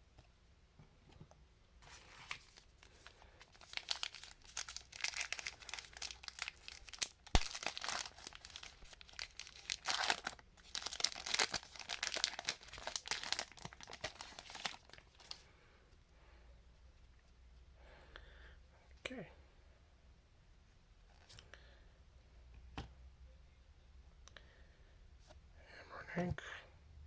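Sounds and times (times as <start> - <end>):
foil wrapper crinkling and tearing: 1.9 - 15.4.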